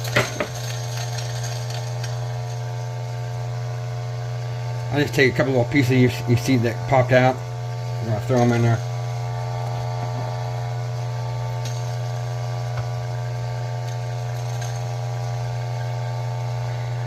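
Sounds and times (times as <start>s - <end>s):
coffee grinder motor grinding: 0.0s - 17.0s.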